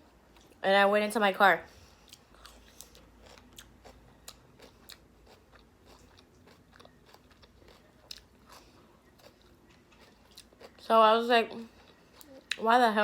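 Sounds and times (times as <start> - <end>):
person chewing food: 1.8 - 10.8, 11.6 - 12.6.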